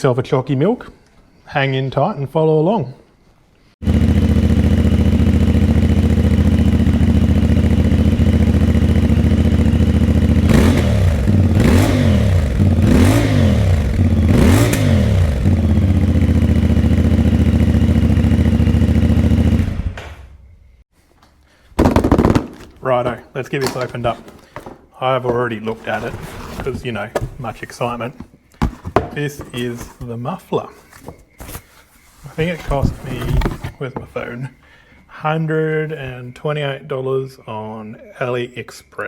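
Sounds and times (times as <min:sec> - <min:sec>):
motorcycle engine idling: 0:03.8 - 0:20.8.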